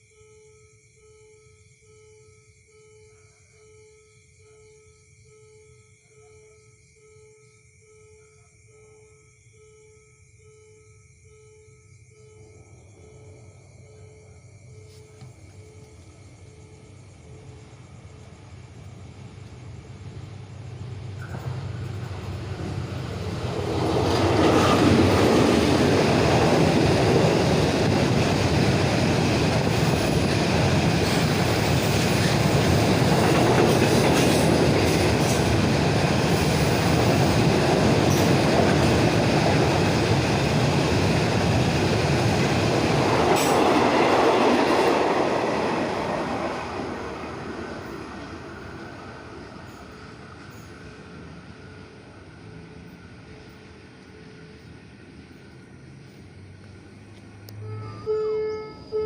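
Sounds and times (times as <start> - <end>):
train rumble and wheel noise: 14.8 - 59.0.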